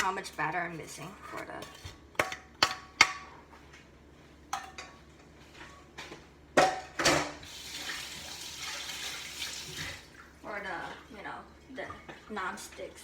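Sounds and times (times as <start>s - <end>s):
metal pans and utensils clanking: 4.5s - 7.5s.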